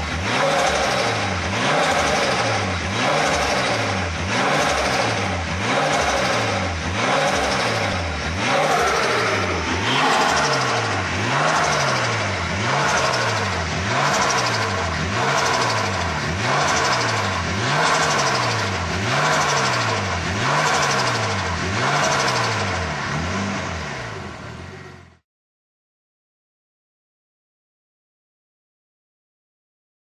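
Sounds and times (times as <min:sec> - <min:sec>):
car engine revving: 0:00.0 - 0:25.2.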